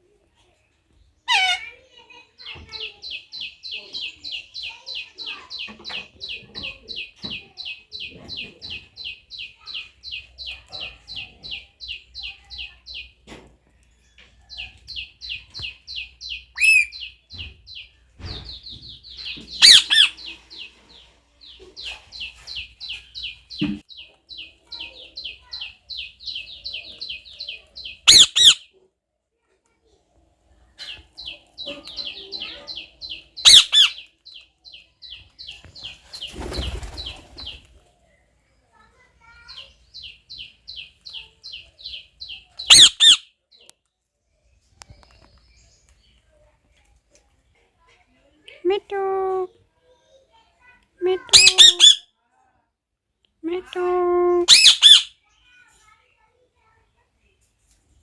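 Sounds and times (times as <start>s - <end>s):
parrot sharp calls: 1.3s - 1.6s, 16.6s - 17.0s, 19.6s - 20.3s, 28.0s - 28.7s, 33.4s - 34.0s, 42.7s - 43.3s, 51.1s - 52.0s, 54.4s - 55.2s
parrot chirping rapid high notes: 28.1s - 28.6s, 42.7s - 43.2s, 51.1s - 52.0s, 54.5s - 55.1s.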